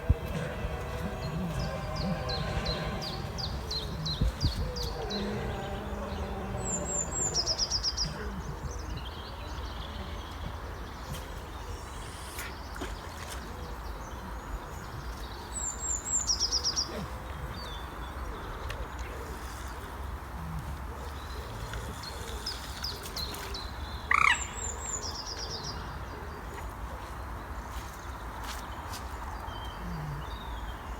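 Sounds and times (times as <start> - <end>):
low background rumble: 0.0 - 7.8
small birds chirping and trilling: 0.0 - 30.9.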